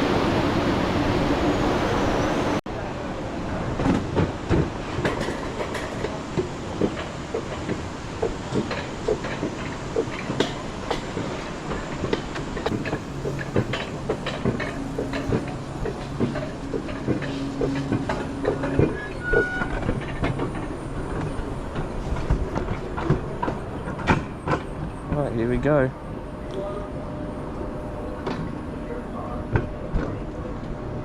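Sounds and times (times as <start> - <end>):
coaster cart rattling on metal rail: 3.8 - 25.8.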